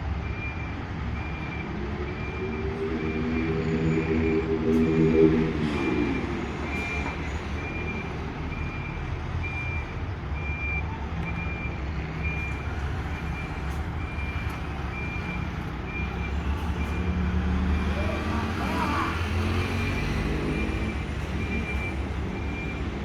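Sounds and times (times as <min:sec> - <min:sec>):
reverse alarm beeping: 0:00.3 - 0:18.2.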